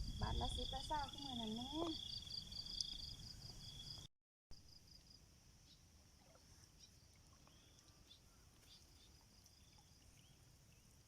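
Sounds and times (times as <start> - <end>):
insects trilling: 0.0 - 5.8.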